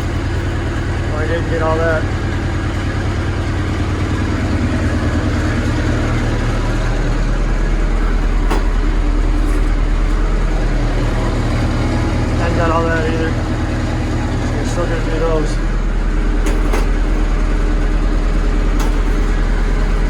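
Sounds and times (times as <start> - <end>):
low motor drone: 0.0 - 20.0.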